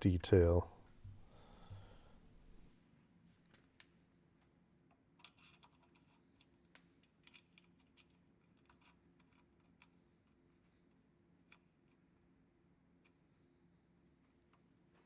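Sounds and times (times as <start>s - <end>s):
faint steady hum: 0.0s - 3.2s.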